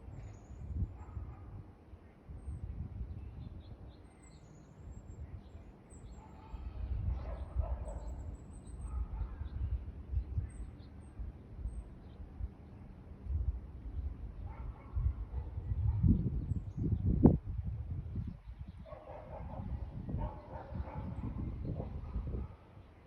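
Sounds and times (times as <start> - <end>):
small birds chirping: 3.0 - 13.0.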